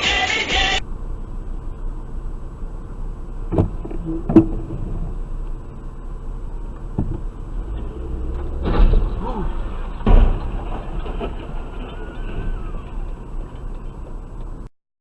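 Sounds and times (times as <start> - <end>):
engine and road rumble inside car: 0.6 - 14.7.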